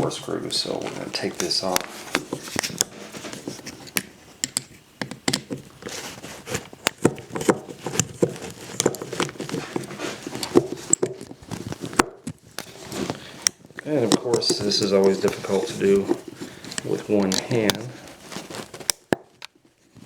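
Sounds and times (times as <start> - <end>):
metal clicks and scrapes of screws: 12.2 - 17.8.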